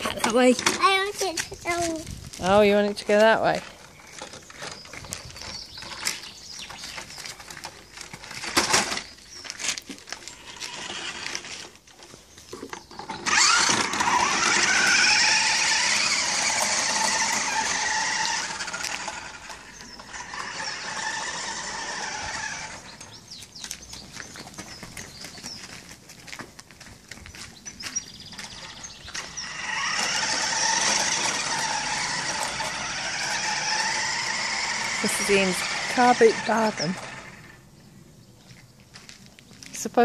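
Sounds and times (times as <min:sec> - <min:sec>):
toy truck motor whining: 0:10.2 - 0:11.8, 0:12.7 - 0:23.2, 0:28.4 - 0:37.6.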